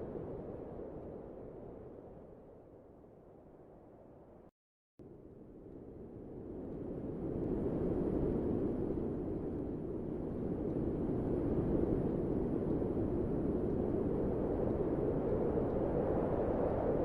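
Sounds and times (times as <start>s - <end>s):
low wind noise: 5.6s - 17.0s.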